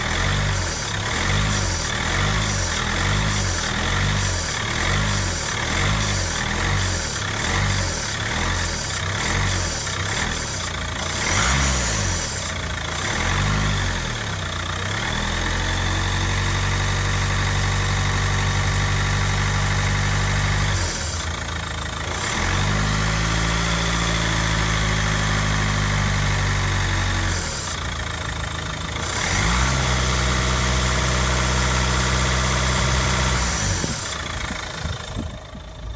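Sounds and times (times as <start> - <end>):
engine hissing: 0.0 - 13.4
diesel engine revving: 0.0 - 35.8.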